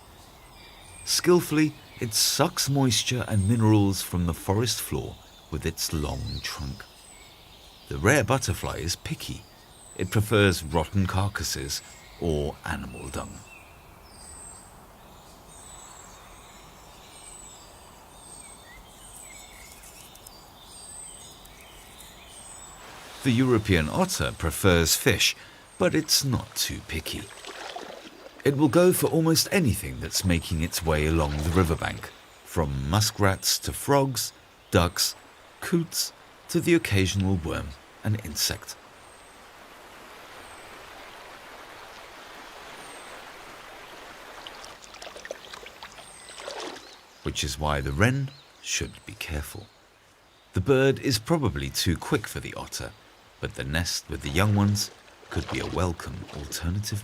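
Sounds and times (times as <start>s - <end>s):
stream water rushing: 0.0s - 47.6s, 49.8s - 57.0s
steady background hiss: 0.0s - 57.0s.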